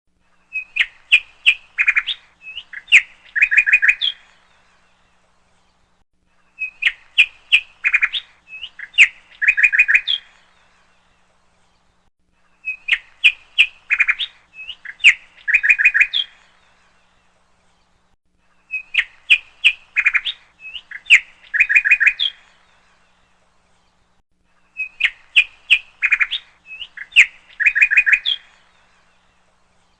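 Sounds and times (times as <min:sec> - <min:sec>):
parrot chirping and trilling: 0:06.6 - 0:10.3, 0:12.6 - 0:16.4, 0:18.7 - 0:22.4, 0:24.7 - 0:28.5.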